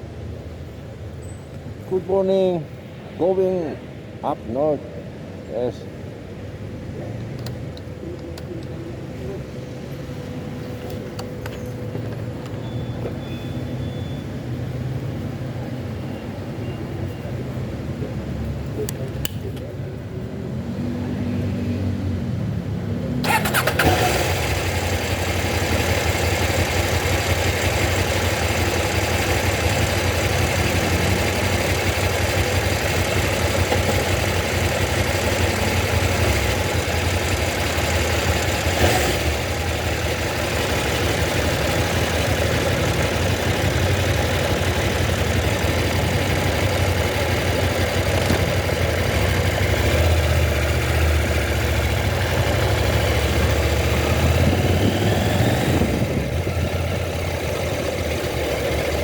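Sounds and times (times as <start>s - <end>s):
wind and road noise: 0.0s - 59.0s
vehicle engine running: 23.2s - 59.0s.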